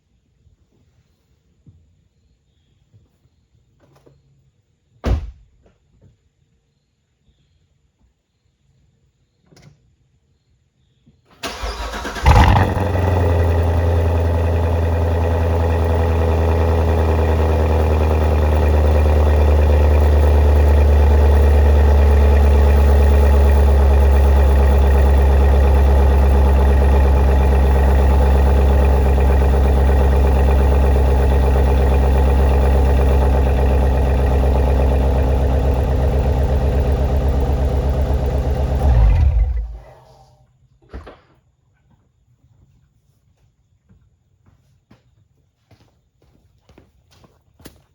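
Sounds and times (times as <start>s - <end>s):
starter cranking: 11.4s - 13.4s, 16.4s - 39.9s
car engine revving and idling: 11.5s - 40.1s.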